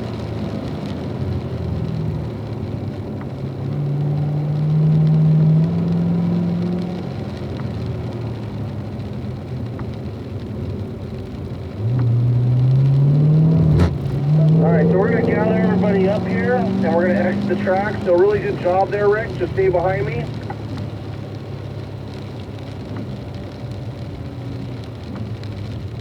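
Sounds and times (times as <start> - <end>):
car engine revving: 11.7 - 20.6.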